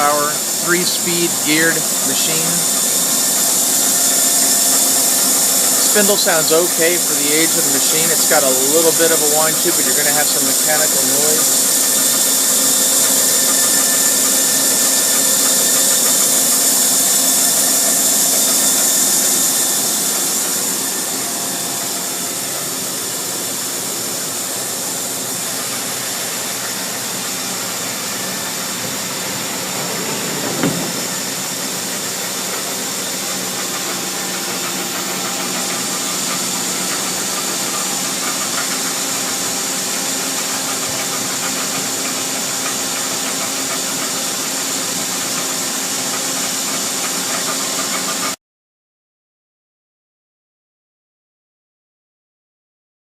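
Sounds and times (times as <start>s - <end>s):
lathe spindle whining: 0.0s - 48.2s
brief knock: 30.3s - 31.2s.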